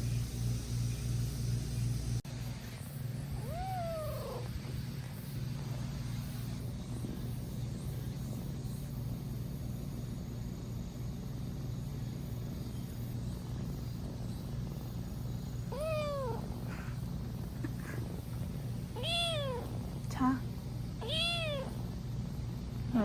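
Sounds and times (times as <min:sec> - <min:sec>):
steady low hum: 0:00.0 - 0:23.0
cat meowing: 0:03.4 - 0:04.6, 0:15.7 - 0:17.0, 0:18.9 - 0:19.8, 0:21.0 - 0:21.8.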